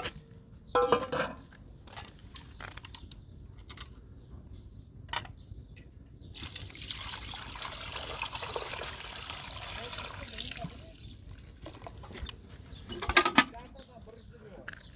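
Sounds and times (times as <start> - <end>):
knocks and clatters: 12.9 - 13.6.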